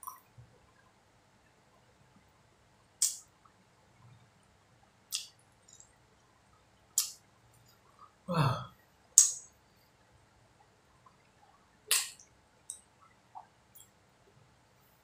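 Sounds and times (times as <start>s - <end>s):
mouth clicks of chewing: 5.1s - 5.9s, 11.9s - 12.8s
person humming: 8.3s - 8.7s.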